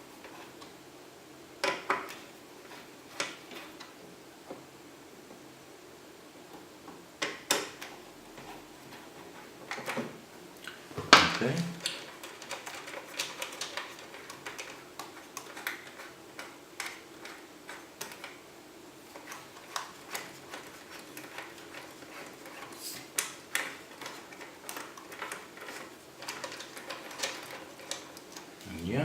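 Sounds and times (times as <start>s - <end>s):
hands clicking on computer parts: 10.6s - 18.4s, 19.1s - 28.6s.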